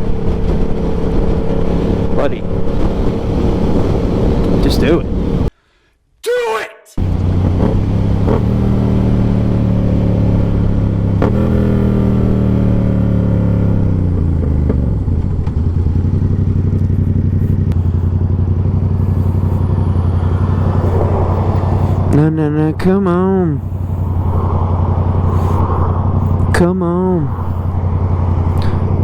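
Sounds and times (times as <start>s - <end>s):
motorcycle engine slowing to idle: 7.0s - 26.6s, 27.4s - 29.0s.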